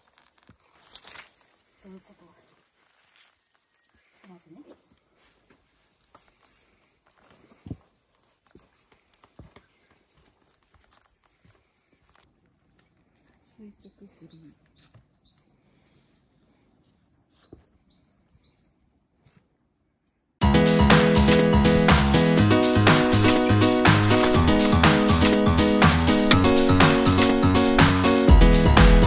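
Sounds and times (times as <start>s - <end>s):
small bird singing: 0.6s - 2.6s, 3.2s - 12.2s, 13.4s - 15.7s, 17.1s - 18.9s.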